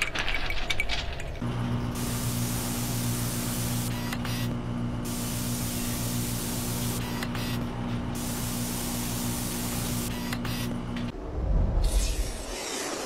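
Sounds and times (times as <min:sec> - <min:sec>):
steady machine hum: 0:01.4 - 0:11.5
hissing cutting noise: 0:01.5 - 0:11.1.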